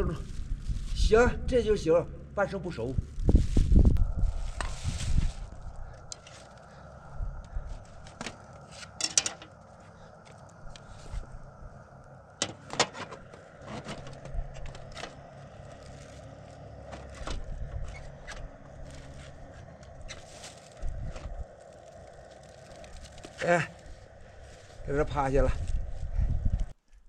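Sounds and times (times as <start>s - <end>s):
steady hiss: 0.0s - 26.8s
utensils clinking on a pot: 8.9s - 9.5s.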